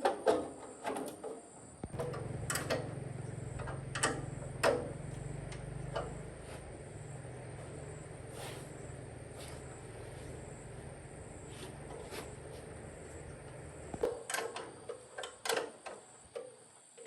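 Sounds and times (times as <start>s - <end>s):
electric motor humming: 1.9s - 14.1s.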